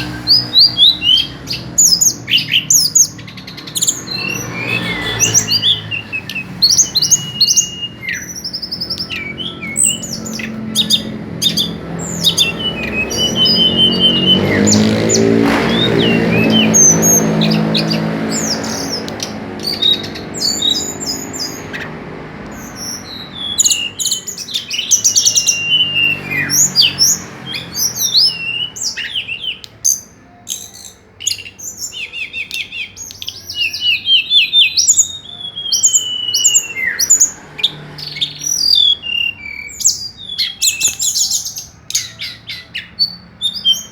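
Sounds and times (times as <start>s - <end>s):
songbird singing: 0.0s - 43.9s
low drone: 3.5s - 23.4s.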